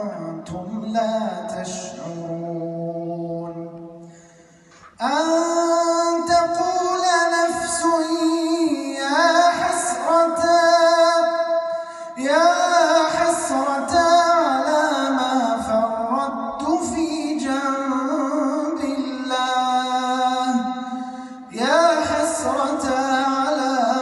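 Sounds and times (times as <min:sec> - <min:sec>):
man chanting: 0:00.0 - 0:04.0, 0:04.8 - 0:24.0
man breathing: 0:04.0 - 0:05.0, 0:11.6 - 0:12.2, 0:20.8 - 0:21.5.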